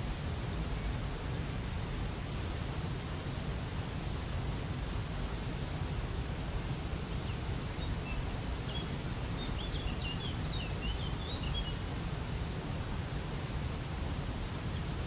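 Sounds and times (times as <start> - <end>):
songbird chirping: 7.8 - 11.8.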